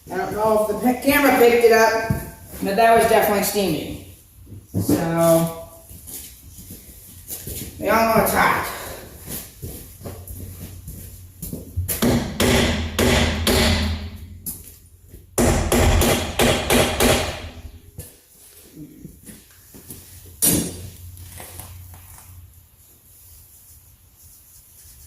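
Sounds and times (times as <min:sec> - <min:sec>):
hammer striking metal: 0:12.0 - 0:14.3, 0:15.4 - 0:17.8.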